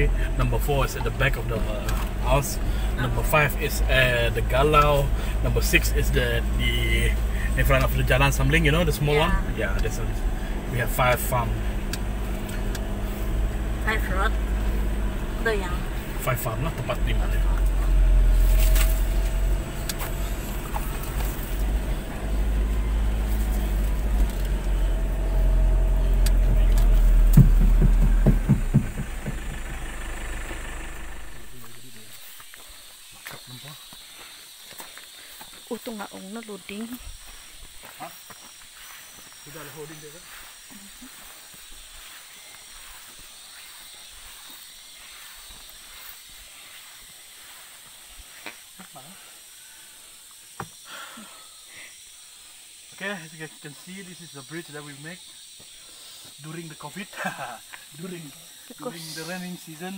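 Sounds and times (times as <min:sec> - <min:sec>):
high-pitched outdoor hiss: 0:00.0 - 0:59.9
road noise: 0:00.0 - 0:59.9
vehicle engine rumble: 0:00.0 - 0:59.9
soft low thumps: 0:25.9 - 0:31.5
short knocks and rattles: 0:26.4 - 0:29.8.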